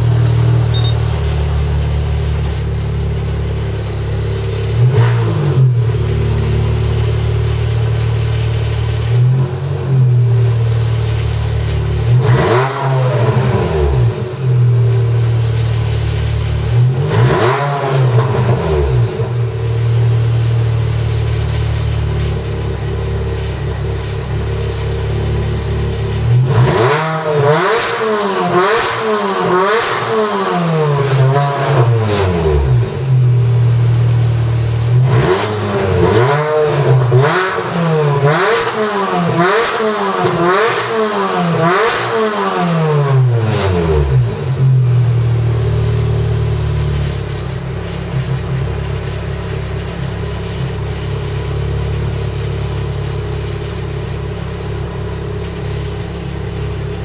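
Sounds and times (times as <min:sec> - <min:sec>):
car engine revving and idling: 0:00.0 - 0:57.0.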